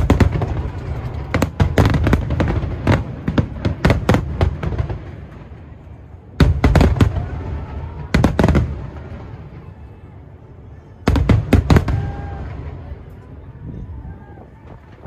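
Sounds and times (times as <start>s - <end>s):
fireworks bangs: 0.0s - 5.8s, 6.4s - 9.8s, 11.1s - 13.1s.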